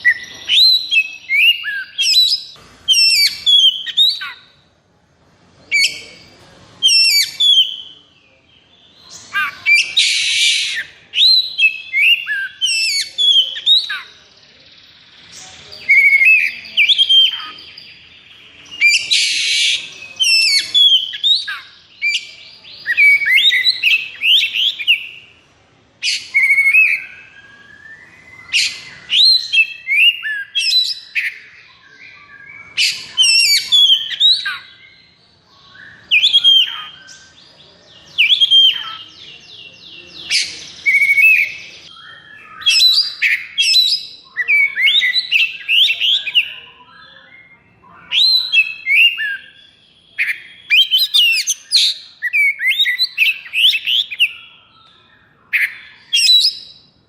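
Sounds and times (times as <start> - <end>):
bird singing whistled phrases: 0.0 - 4.5, 5.7 - 8.1, 8.9 - 25.4, 26.0 - 57.0.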